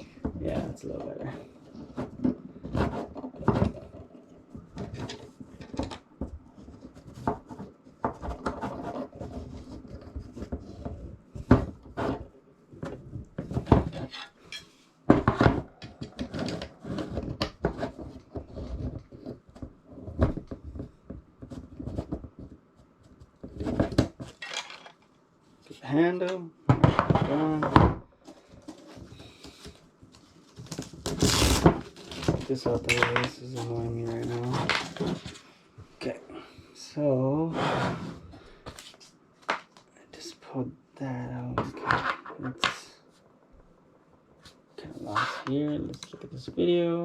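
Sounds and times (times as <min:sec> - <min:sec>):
rubbing and scraping: 0:00.0 - 0:25.0, 0:26.8 - 0:36.2, 0:37.4 - 0:40.3, 0:44.4 - 0:46.7
small parts clicking and clinking: 0:24.4 - 0:25.1.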